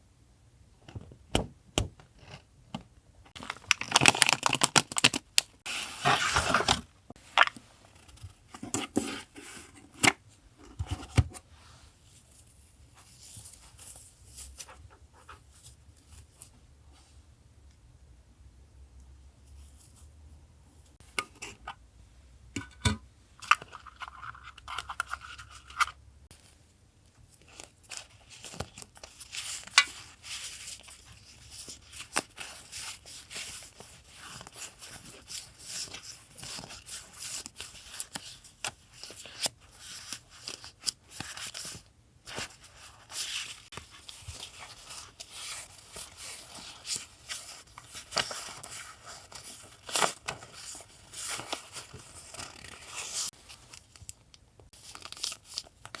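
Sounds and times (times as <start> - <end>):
paper packaging being unwrapped: 3.4 - 6.8, 27.4 - 56.0.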